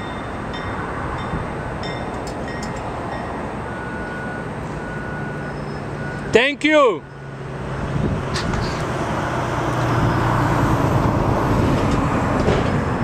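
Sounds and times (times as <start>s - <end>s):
diesel dump truck engine running: 0.0s - 13.0s
rushing noise: 7.1s - 13.0s.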